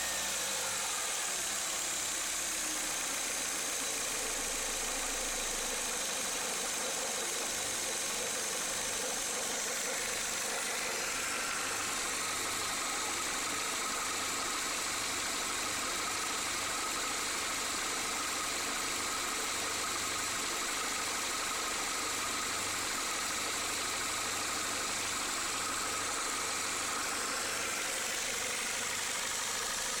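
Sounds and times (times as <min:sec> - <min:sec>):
car engine idling: 0:00.1 - 0:18.0, 0:24.5 - 0:30.0.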